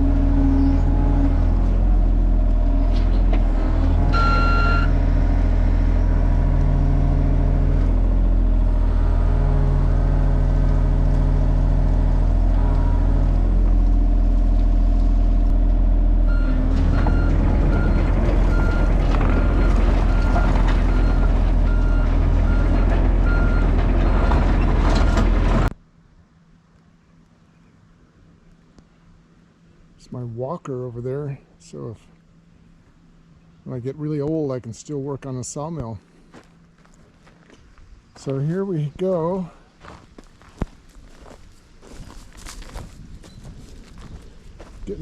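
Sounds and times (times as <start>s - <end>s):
excavator diesel engine running: 0.0s - 25.7s
alarm beeping: 4.1s - 5.0s
short beep: 4.1s - 5.0s.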